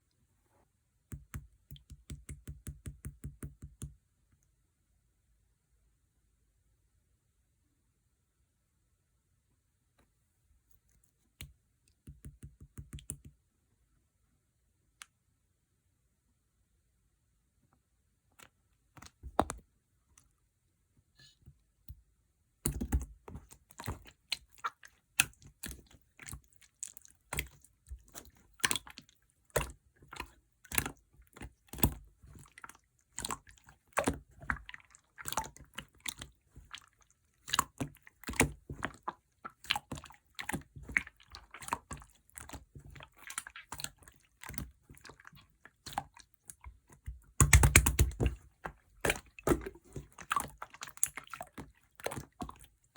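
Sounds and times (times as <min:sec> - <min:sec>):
slime squished by hand: 0:22.6 - 0:52.7.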